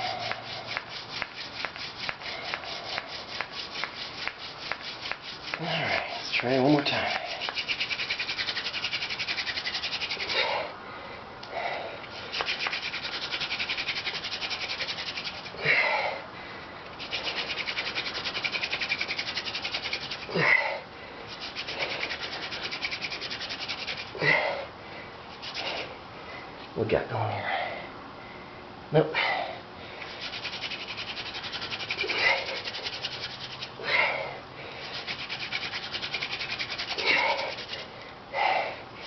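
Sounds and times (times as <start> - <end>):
hand drill rubbing and scraping: 0.0 - 10.7, 12.0 - 16.0, 16.9 - 20.6, 21.2 - 24.4, 25.3 - 26.0, 30.0 - 34.0, 34.7 - 38.0
person breathing sharply: 37.0 - 39.0.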